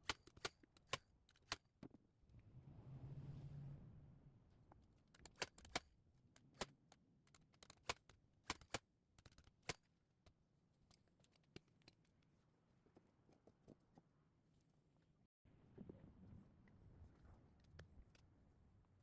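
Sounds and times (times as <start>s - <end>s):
low hum: 2.2s - 5.0s.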